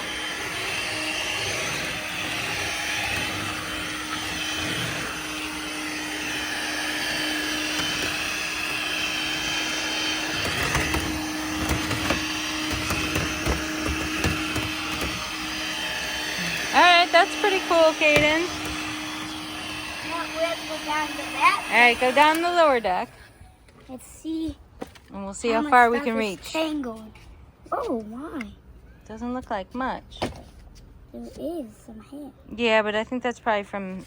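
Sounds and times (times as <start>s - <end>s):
robot vacuum running: 0.0s - 23.4s.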